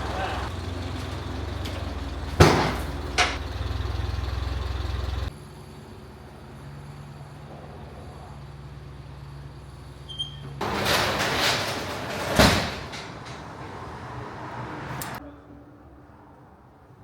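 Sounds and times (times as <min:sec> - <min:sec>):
sharp bangs: 0:00.0 - 0:03.8
engine idling: 0:00.0 - 0:15.2.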